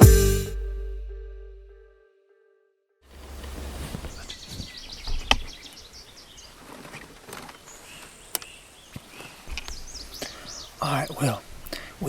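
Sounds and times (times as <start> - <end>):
small birds chirping: 3.9 - 12.0.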